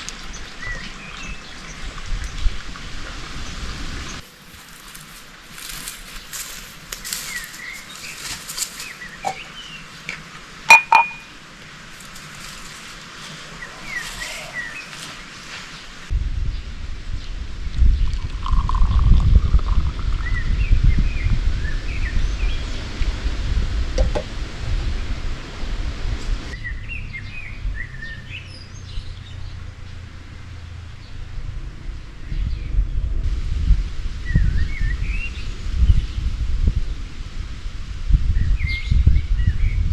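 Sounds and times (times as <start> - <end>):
small birds chirping: 5.6 - 9.9, 13.4 - 16.0
sharp ringing clinks: 10.7 - 11.3
birds chirping and singing: 13.6 - 15.2.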